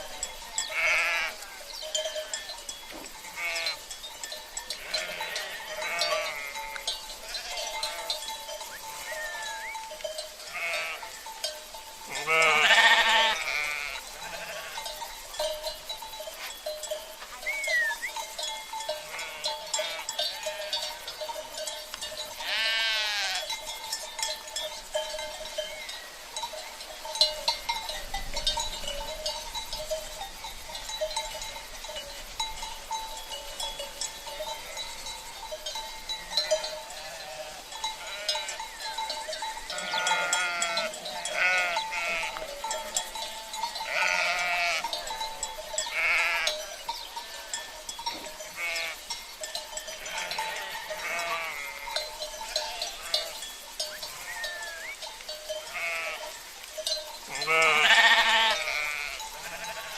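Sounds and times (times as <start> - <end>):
cowbells jingling: 0.0 - 59.9
sheep bleating: 0.6 - 1.6, 3.3 - 3.8, 4.8 - 9.8, 10.5 - 11.2, 12.1 - 14.9, 19.0 - 20.9, 22.4 - 23.5, 36.4 - 38.6, 39.7 - 42.8, 43.8 - 45.0, 45.9 - 46.6, 48.4 - 49.0, 49.9 - 53.4, 54.1 - 55.0, 55.6 - 56.3, 57.3 - 59.9.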